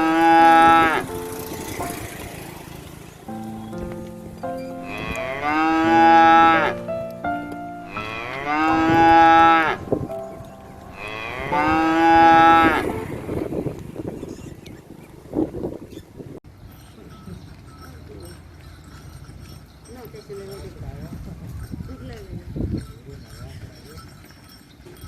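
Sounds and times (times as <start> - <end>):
cow mooing: 0.0 - 1.3, 4.8 - 6.9, 7.8 - 9.9, 10.9 - 13.4.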